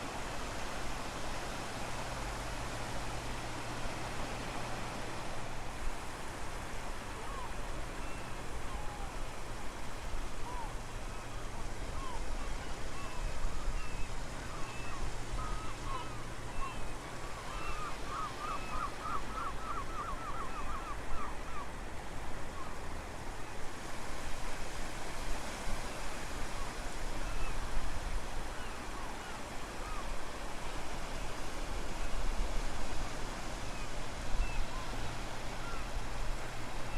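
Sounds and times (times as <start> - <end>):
wind and surf: 0.0 - 36.9.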